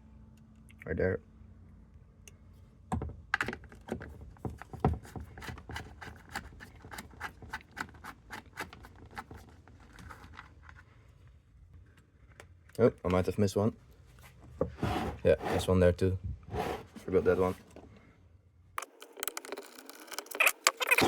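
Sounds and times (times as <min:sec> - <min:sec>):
hex tool clicking and scraping: 0:18.8 - 0:21.0.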